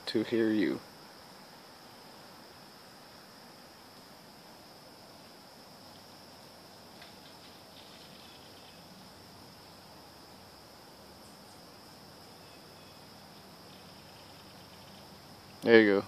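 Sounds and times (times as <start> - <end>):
high-pitched insect drone: 1.9 - 16.0.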